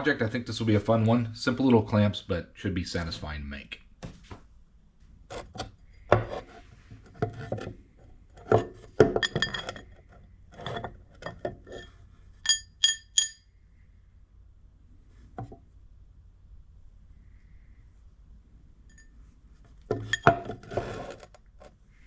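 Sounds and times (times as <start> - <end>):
metal tools knocking and clattering: 8.5 - 9.9, 10.6 - 13.4, 19.9 - 20.6
ringing metallic clinks: 12.4 - 13.5.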